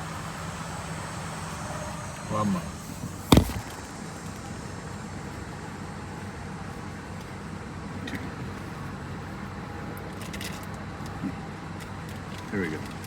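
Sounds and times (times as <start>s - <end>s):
car engine idling: 0.0s - 10.0s
sharp thump: 3.2s - 3.8s.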